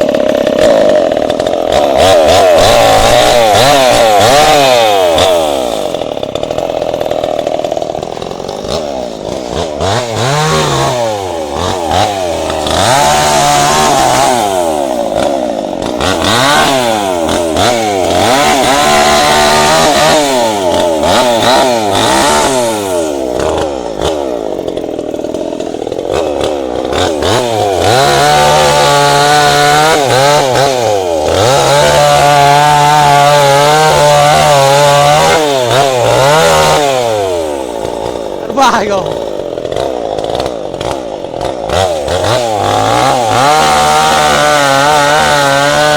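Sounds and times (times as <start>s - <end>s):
chainsaw revving: 0.0s - 45.9s.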